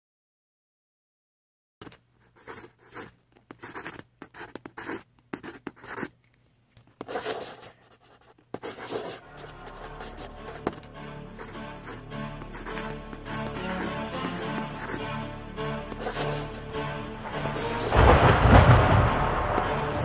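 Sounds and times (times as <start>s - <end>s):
pencil scratching on paper: 1.8s - 6.1s, 7.0s - 15.1s, 15.9s - 20.0s
low musical drone: 9.2s - 20.0s.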